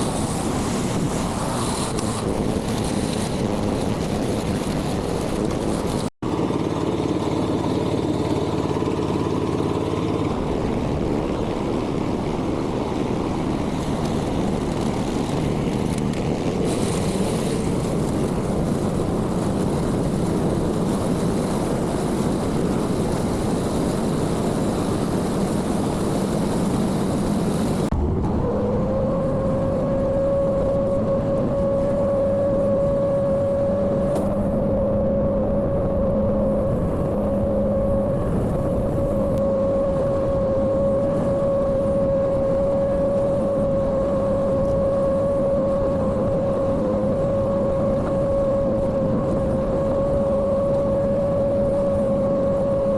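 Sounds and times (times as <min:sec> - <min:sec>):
construction machine engine running: 0:00.0 - 0:29.7
steady whine rising in pitch: 0:00.0 - 0:52.9.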